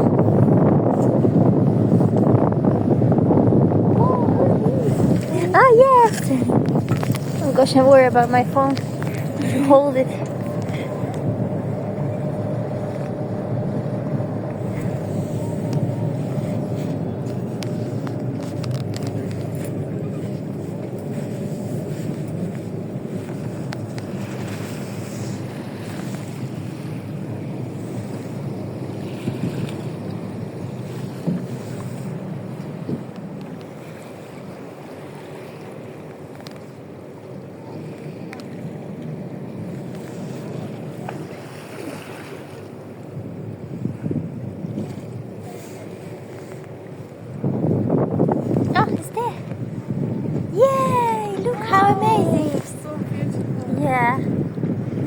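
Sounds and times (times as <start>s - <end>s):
boat engine rumble: 0.0s - 55.0s
water rushing past hull: 0.0s - 55.0s
wind buffeting microphone: 0.0s - 55.0s.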